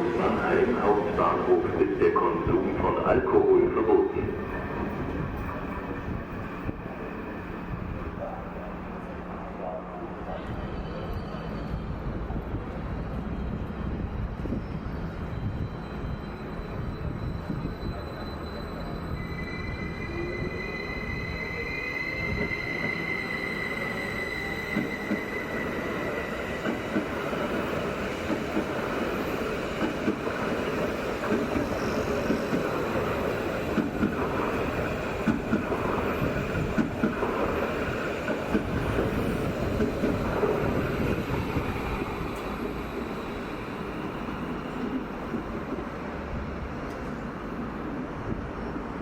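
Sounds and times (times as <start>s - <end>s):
train wheel squeal: 10.3s - 45.3s.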